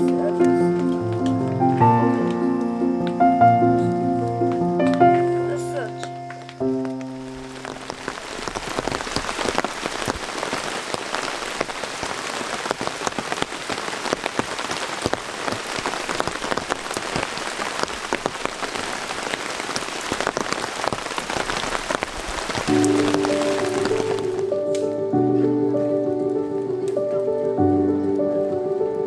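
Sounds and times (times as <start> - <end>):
background music: 0.0 - 8.5, 22.6 - 29.0
steady rain falling: 0.0 - 29.0.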